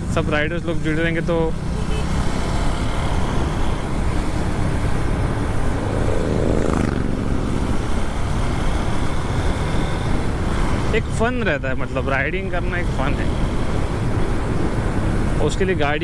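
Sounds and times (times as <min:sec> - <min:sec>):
motorcycle engine running: 0:00.0 - 0:15.2
wind rushing over microphone: 0:03.2 - 0:11.0.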